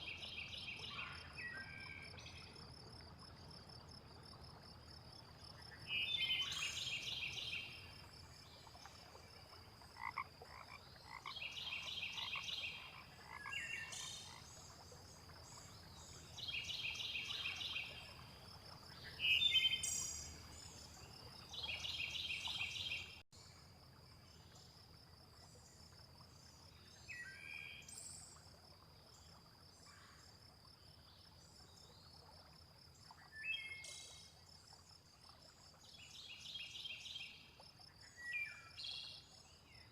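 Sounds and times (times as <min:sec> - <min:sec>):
frogs croaking: 0:00.0 - 0:24.1.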